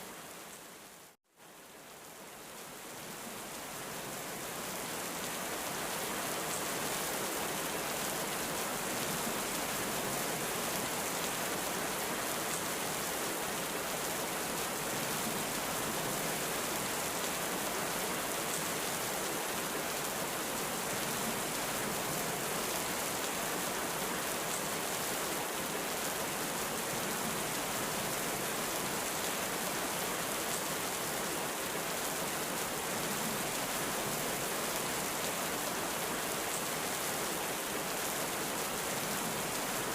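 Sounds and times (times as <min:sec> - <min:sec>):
heavy rain falling: 0:02.8 - 0:39.9.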